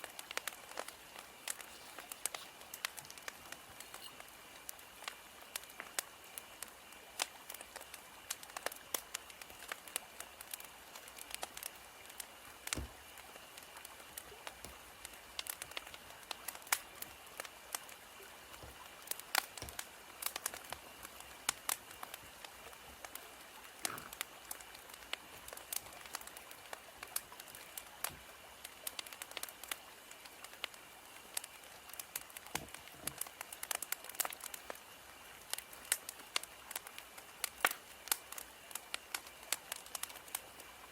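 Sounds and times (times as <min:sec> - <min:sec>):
soft hiss of fire: 0:00.0 - 0:40.9
wood fire crackling: 0:00.0 - 0:40.9.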